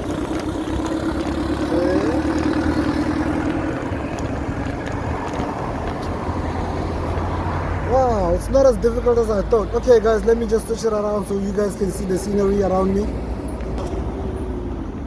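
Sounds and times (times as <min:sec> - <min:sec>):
street traffic hum: 0:00.0 - 0:15.0
wind rumble on microphone: 0:02.6 - 0:07.8.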